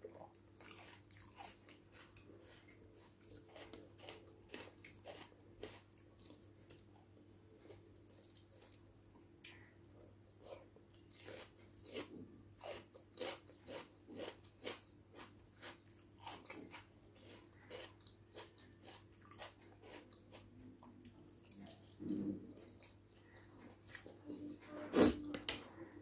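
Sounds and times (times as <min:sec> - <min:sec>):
wet chewing: 0:10.4 - 0:24.3.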